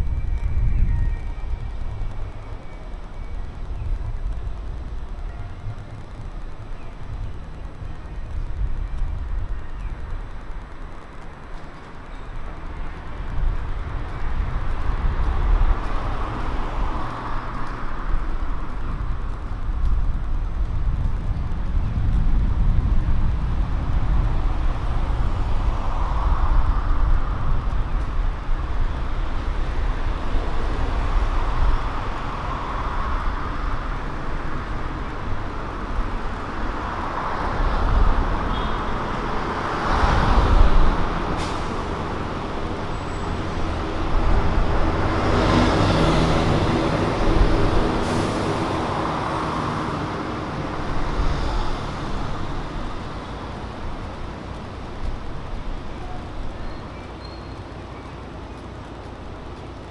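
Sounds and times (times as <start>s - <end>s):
cars and buses passing: 0.0s - 59.9s.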